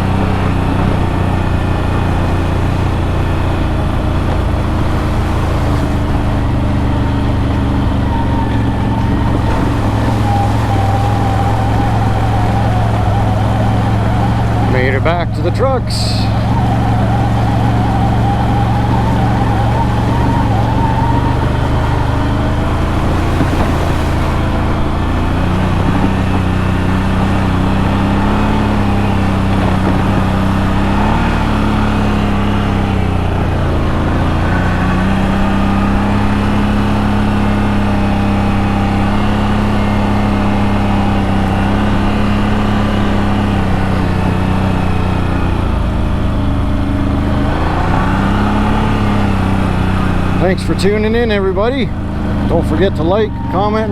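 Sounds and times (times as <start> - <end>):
atv engine droning: 0.0 - 53.9.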